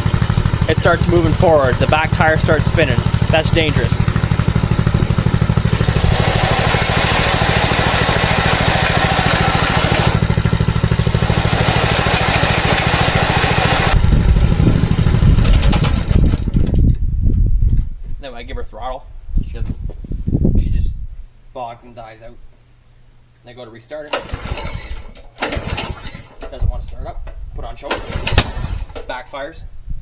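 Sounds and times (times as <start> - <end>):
small engine idling and sputtering: 0.0 - 17.0, 24.1 - 26.6, 27.9 - 29.1.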